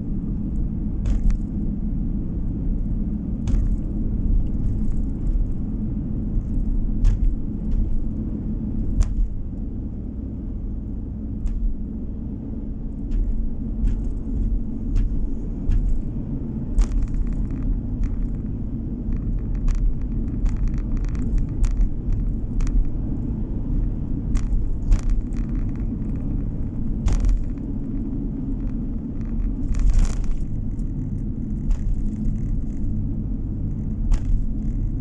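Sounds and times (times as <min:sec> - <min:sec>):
car road and engine rumble: 0:00.0 - 0:35.0
sharp clicks and knocks: 0:00.4 - 0:01.8, 0:02.4 - 0:09.7, 0:11.4 - 0:12.0, 0:12.9 - 0:35.0.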